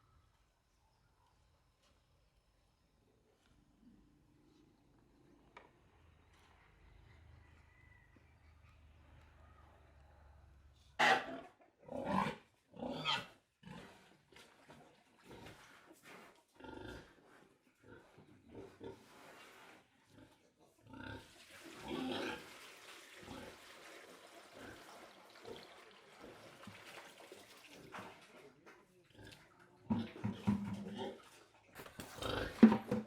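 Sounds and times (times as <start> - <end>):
pigs calling: 11.0 - 13.9.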